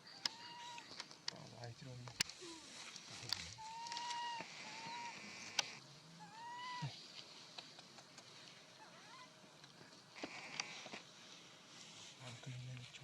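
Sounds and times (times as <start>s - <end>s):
faint short monkey call: 3.6s - 5.2s, 6.2s - 7.0s
young monkey whining cry: 6.2s - 7.0s, 8.8s - 9.3s.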